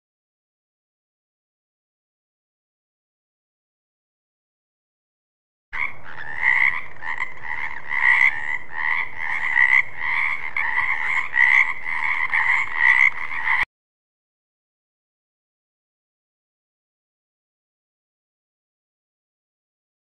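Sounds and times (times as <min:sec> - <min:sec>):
frog croaking: 0:05.8 - 0:13.7.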